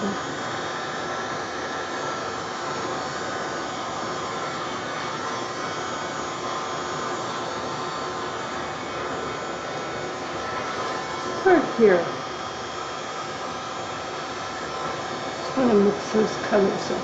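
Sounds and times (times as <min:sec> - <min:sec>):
electric air blower running: 0:00.0 - 0:17.0.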